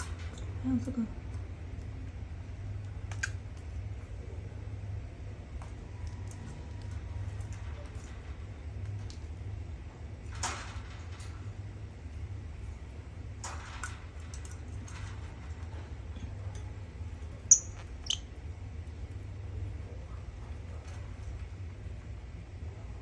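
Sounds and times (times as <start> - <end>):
steady low hum: 0.0 - 23.0
bird high-pitched squeaks: 17.5 - 18.4.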